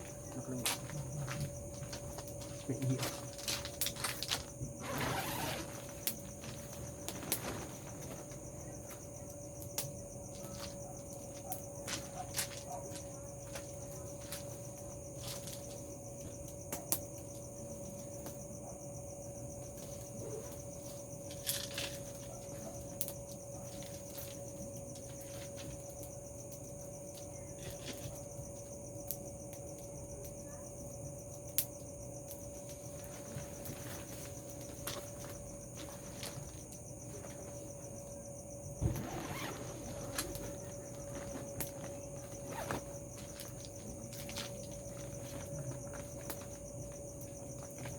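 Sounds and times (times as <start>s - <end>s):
crickets and insects chirping: 0.0s - 47.9s
sharp pops and crackles: 0.3s - 9.0s, 16.4s - 17.5s, 38.8s - 46.5s.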